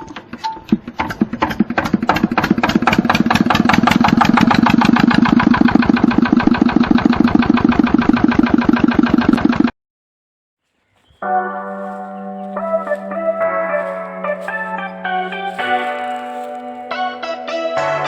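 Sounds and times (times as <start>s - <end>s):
tractor engine starting and running: 0.0s - 9.7s.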